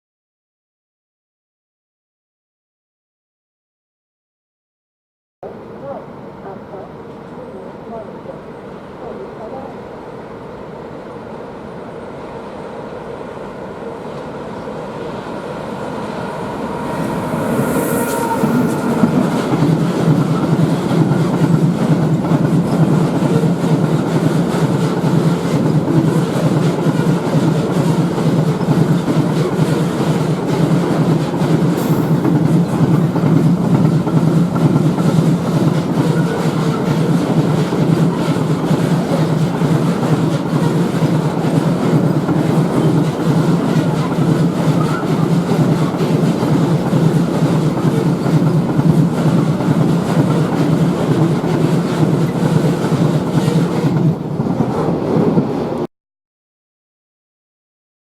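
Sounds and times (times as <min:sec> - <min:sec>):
locomotive rushing past: 0:12.1 - 0:55.8.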